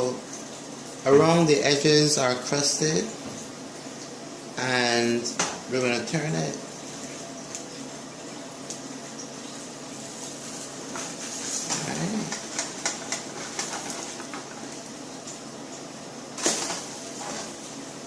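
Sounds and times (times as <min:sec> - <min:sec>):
batter sizzling in a frying pan: 0:00.0 - 0:18.0
spatula scraping a pan: 0:10.3 - 0:14.6, 0:16.4 - 0:17.7.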